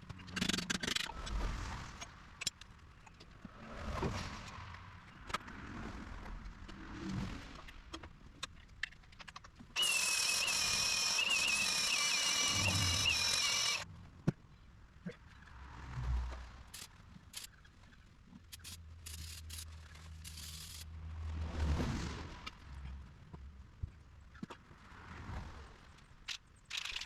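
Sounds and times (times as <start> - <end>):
tools and parts clicking: 8.5 - 13.8, 18.5 - 20.9, 26.3 - 27.0.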